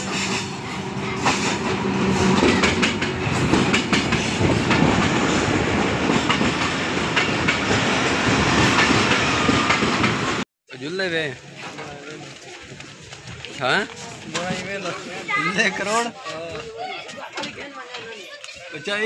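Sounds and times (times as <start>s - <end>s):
diesel locomotive engine hum: 0.0s - 10.4s
train wheels clattering over rail joints: 1.2s - 10.4s.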